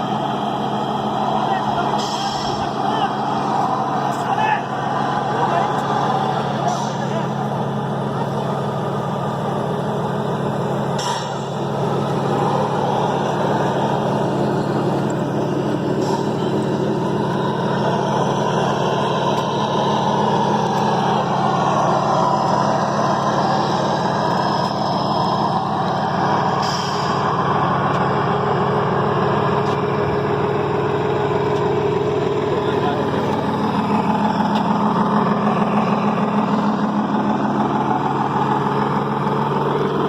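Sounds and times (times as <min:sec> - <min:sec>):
model truck engine sound: 0:00.0 - 0:40.0.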